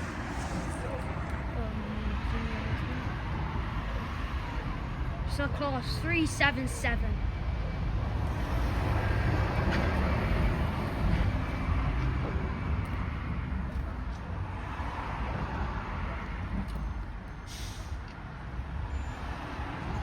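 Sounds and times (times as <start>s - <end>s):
train running noise: 0.0s - 20.0s.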